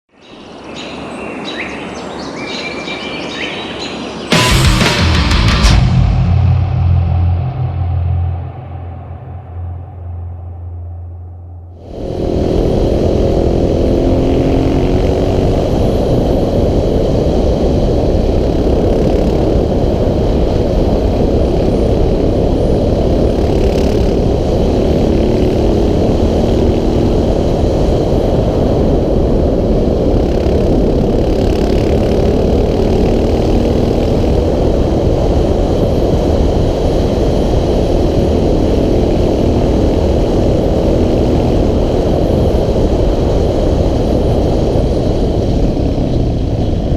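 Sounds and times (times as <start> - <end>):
rushing noise: 4.3 - 32.3
motorcycle engine revving: 11.6 - 17.3, 29.6 - 34.6.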